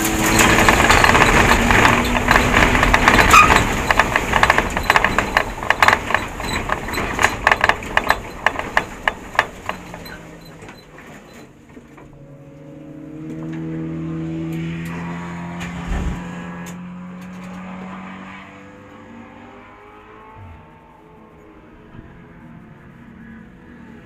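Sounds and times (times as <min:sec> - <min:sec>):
race car engine popping: 0:00.0 - 0:12.2.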